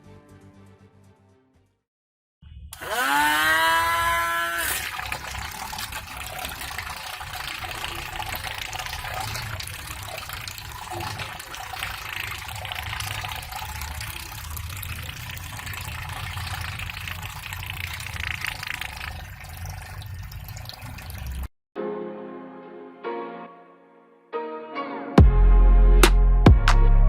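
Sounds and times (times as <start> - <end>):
small motor humming: 2.8 - 6.0
water churning and splashing: 3.2 - 21.5.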